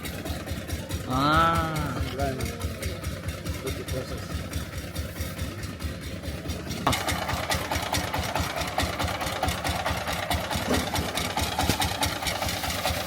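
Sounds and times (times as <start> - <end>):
rice hulling machine knocking: 0.0 - 13.0.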